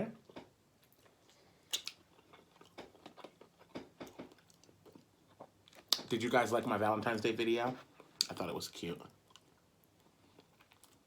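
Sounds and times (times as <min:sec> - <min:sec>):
person chewing food: 0:00.2 - 0:06.1, 0:09.2 - 0:11.0.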